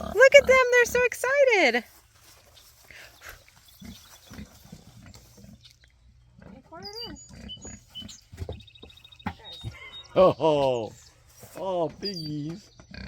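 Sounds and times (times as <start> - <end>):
pigs grunting: 0.0 - 1.0, 12.5 - 13.0.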